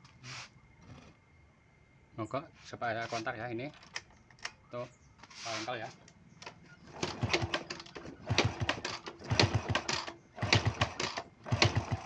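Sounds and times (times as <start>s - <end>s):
motorcycle engine kick-started: 6.9s - 12.0s.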